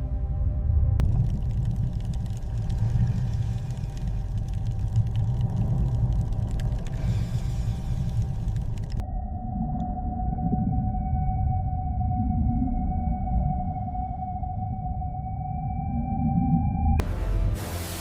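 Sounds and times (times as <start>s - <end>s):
deep rumble: 0.0s - 17.3s
faint scattered clicks: 1.0s - 9.0s.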